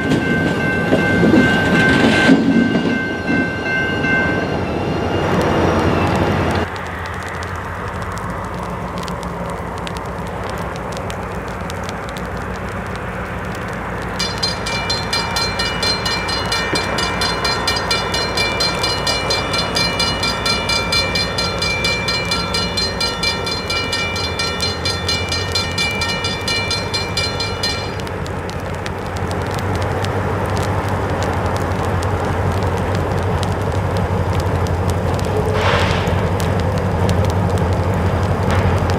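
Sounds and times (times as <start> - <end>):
railroad crossing bell ringing: 0.0 - 6.7, 14.2 - 28.2
diesel locomotive rumbling: 0.0 - 38.9.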